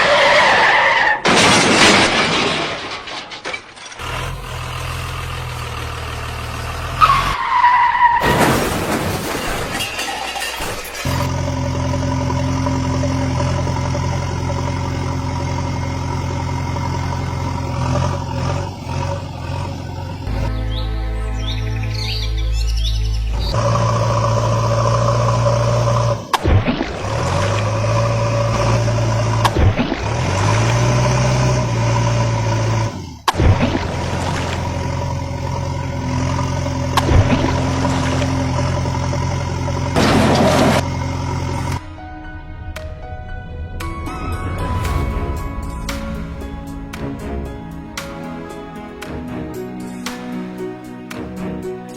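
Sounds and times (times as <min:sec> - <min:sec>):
truck engine droning: 0:00.0 - 0:51.9
vehicle engine idling: 0:04.0 - 0:07.4.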